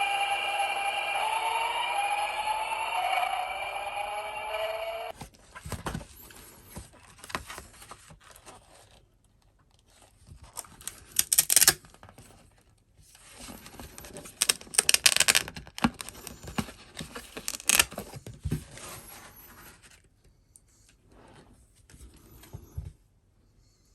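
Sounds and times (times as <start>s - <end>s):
paper packaging tearing: 10.8s - 11.8s, 14.4s - 16.1s.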